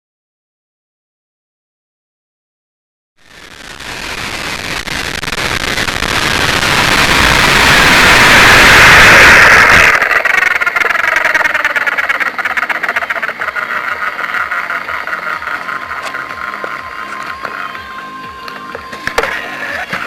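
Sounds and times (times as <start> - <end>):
rotor whine winding down: 3.2 - 20.0
helicopter motor and rotor rush: 3.3 - 20.0.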